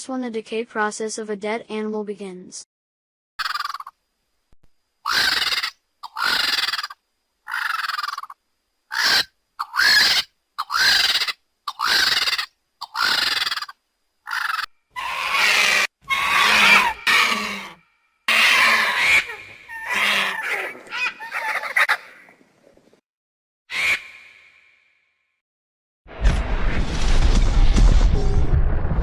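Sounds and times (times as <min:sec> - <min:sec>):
bird harsh screeching calls: 0:03.4 - 0:03.9, 0:05.0 - 0:22.2, 0:23.7 - 0:24.7.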